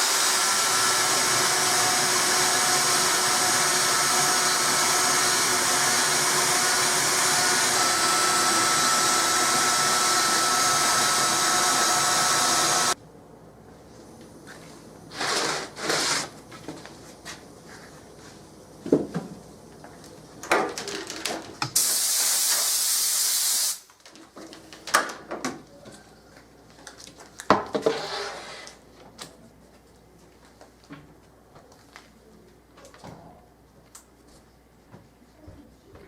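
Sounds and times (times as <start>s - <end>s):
bursts of hissing: 21.8s - 23.8s.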